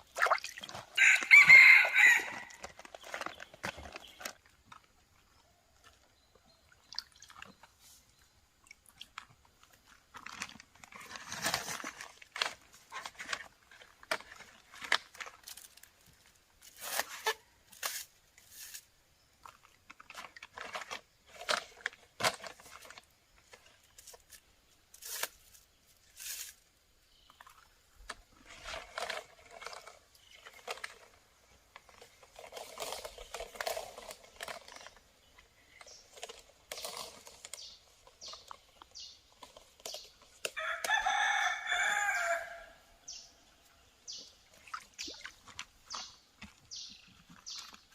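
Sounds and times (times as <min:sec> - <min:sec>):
rooster crowing: 0:01.0 - 0:02.6, 0:40.6 - 0:42.8.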